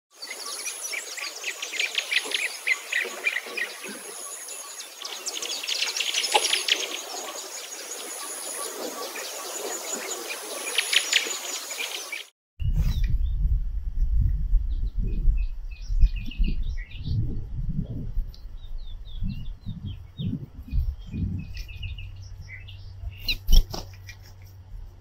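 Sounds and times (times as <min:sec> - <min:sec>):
finches chirping: 0:18.6 - 0:24.1.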